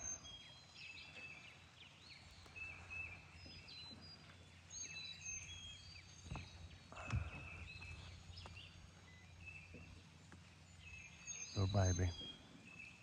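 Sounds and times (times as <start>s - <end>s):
birds singing: 0.0s - 13.0s.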